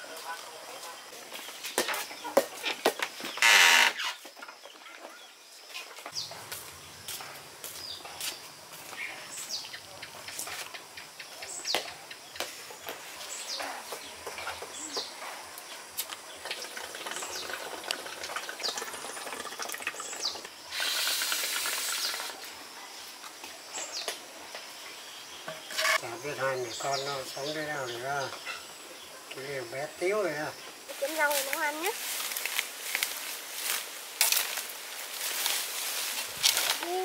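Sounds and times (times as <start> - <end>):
loud rushing hiss: 20.7 - 22.5.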